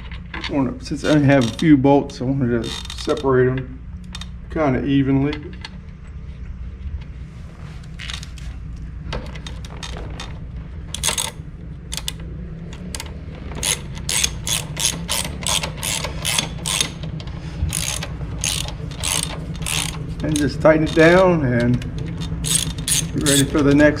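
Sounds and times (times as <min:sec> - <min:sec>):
ratchet wrench clicking: 0:01.0 - 0:01.8, 0:02.6 - 0:03.3, 0:11.0 - 0:23.9.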